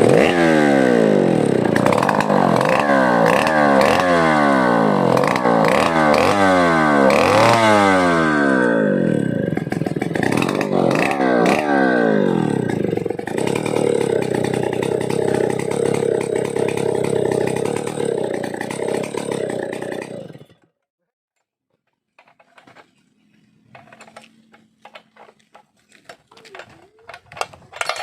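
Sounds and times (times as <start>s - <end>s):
chainsaw engine running: 0.0s - 20.8s, 22.2s - 28.0s
faint clicks and clatter: 21.7s - 28.0s.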